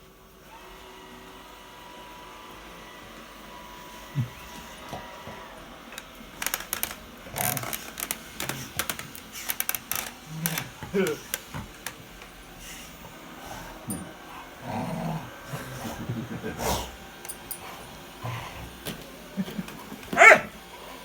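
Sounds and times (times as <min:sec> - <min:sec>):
robot vacuum whirring: 0:02.6 - 0:13.3
sharp clicks and rattles: 0:06.3 - 0:12.0.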